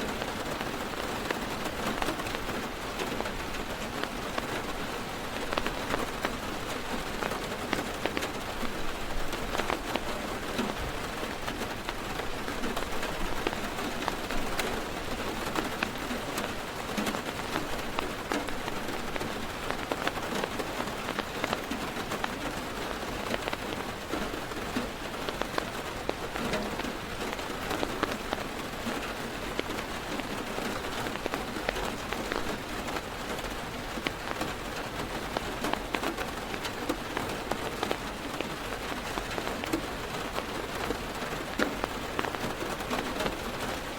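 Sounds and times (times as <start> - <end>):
heavy rain drumming on car roof: 0.0 - 43.9.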